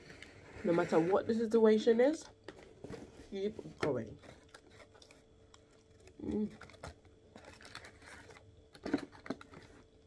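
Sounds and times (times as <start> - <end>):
person humming: 6.2 - 6.6.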